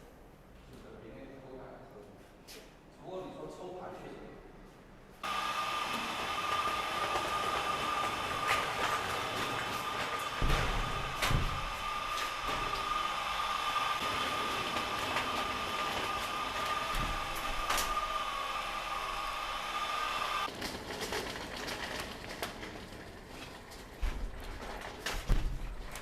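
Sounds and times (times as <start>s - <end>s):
steady mechanical whine: 5.2s - 20.5s.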